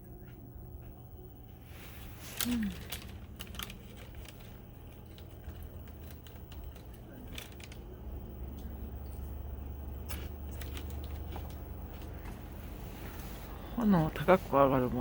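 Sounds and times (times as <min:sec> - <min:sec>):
low fire rumble: 0:01.4 - 0:15.0
wood fire crackling and popping: 0:02.2 - 0:09.2.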